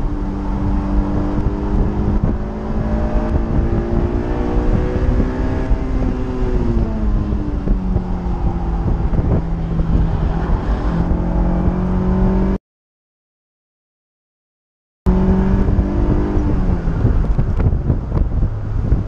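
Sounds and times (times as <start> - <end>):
car engine running: 0.0 - 12.3
heavy wind: 0.0 - 12.6, 15.1 - 19.0
wind and road noise in open car: 0.0 - 12.6, 15.1 - 19.0.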